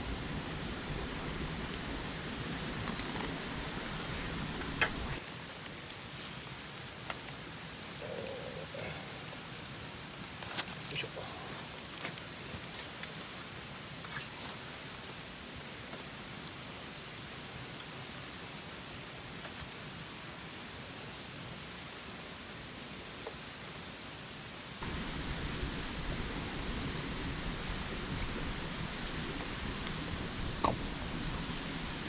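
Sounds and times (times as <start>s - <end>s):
wood fire hissing and crackling: 0.0s - 25.2s, 26.8s - 32.0s
deep rushing fire: 5.2s - 24.8s.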